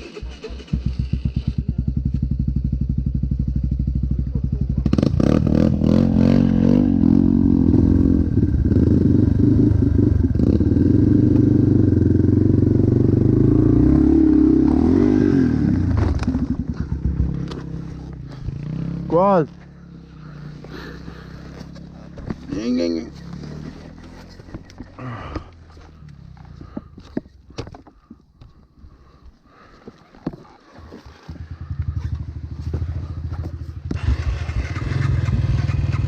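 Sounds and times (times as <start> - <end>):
dirt bike engine revving: 4.8 - 24.6, 31.4 - 36.0.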